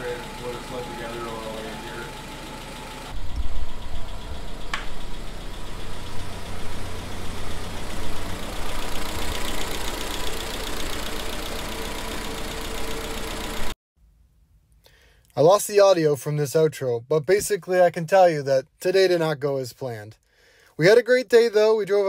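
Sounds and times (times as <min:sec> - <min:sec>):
jeep engine running: 0:00.0 - 0:13.8.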